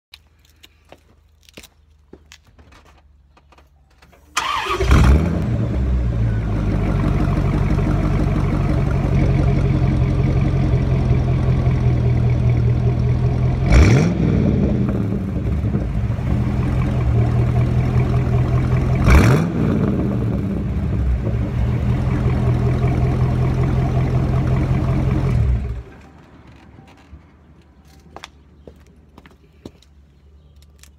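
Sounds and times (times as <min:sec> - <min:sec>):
loud car engine idling and revving: 0:04.4 - 0:27.1.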